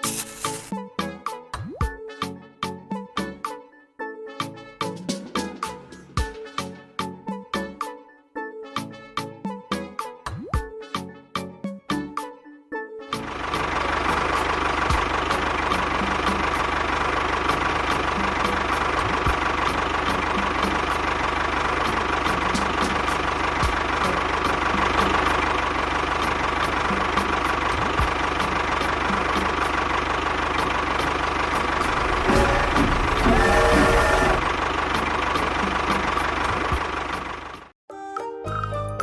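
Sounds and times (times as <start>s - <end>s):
small machine motor running: 31.8s - 34.6s.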